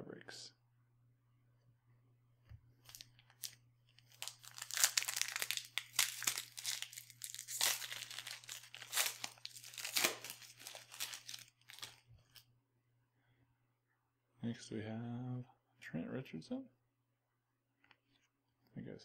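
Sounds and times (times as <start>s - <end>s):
plastic wrapper tearing and crinkling: 2.8s - 12.4s.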